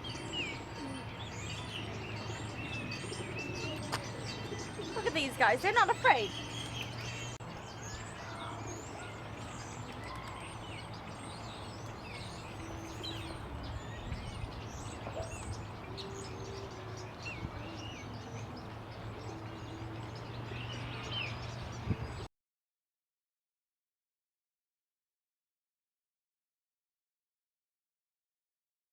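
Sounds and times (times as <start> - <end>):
small birds chirping: 0.0 - 22.3.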